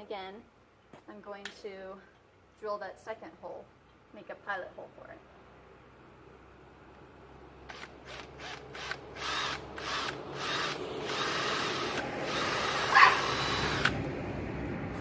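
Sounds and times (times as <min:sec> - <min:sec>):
power drill boring: 0:07.7 - 0:14.0.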